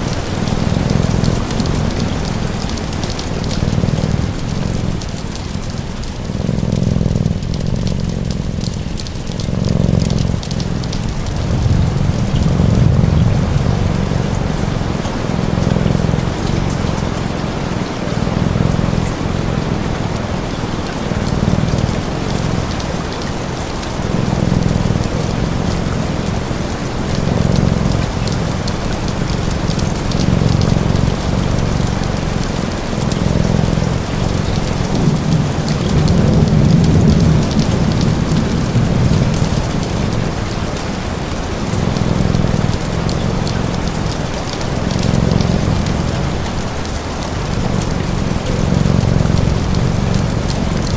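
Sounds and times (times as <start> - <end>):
faint crackling ticks: 0.0 - 50.9
steady rain: 0.0 - 50.9.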